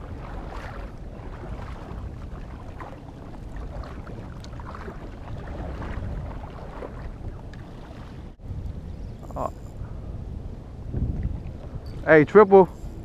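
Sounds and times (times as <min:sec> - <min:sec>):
small water splashes: 0:00.0 - 0:08.4
wind buffeting microphone: 0:00.0 - 0:13.0.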